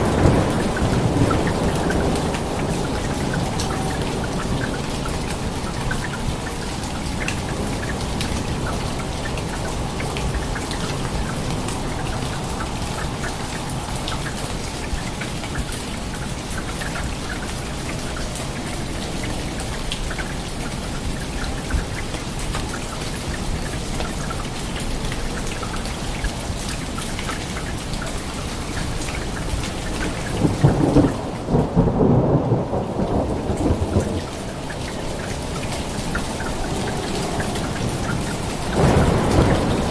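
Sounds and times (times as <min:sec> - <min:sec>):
thunder rumbling: 0:00.0 - 0:05.7, 0:30.3 - 0:39.9
steady rain falling: 0:00.0 - 0:39.9.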